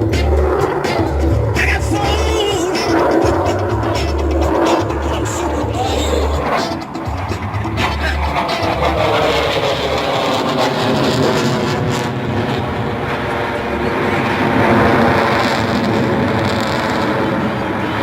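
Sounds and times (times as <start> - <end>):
jet noise in flight: 0.0 - 18.0.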